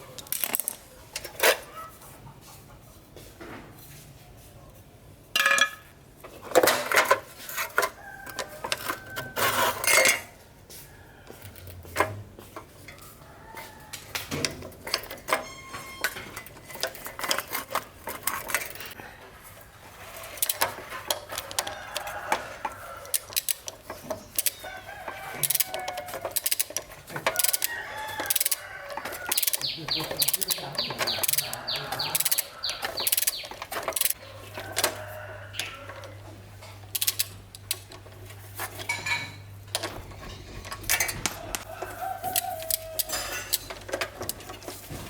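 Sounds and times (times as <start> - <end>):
metal tools clinking: 6.6 - 10.3, 14.8 - 19.0, 23.1 - 34.8, 37.0 - 41.6, 42.3 - 44.9.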